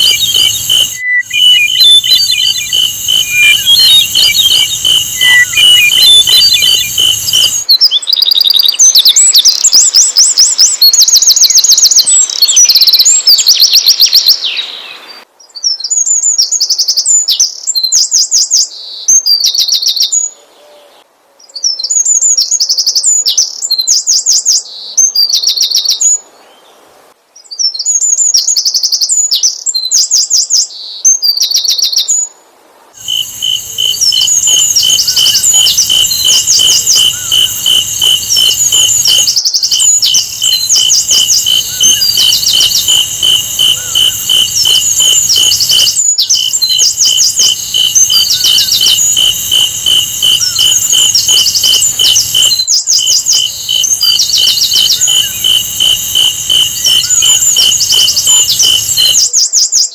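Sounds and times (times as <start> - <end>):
high buzzy tone: 0.0 - 7.7, 33.0 - 59.2
bird trilling song: 0.0 - 15.2, 33.0 - 59.4.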